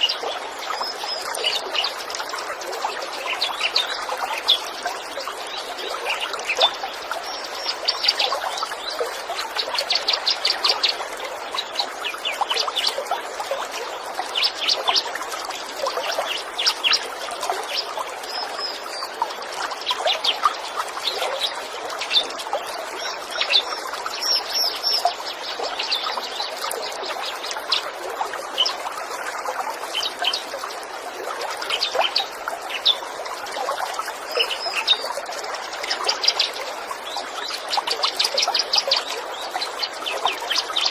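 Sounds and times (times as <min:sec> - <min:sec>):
trickling stream: 0:00.0 - 0:40.9
songbirds chirping and trilling: 0:31.6 - 0:40.9.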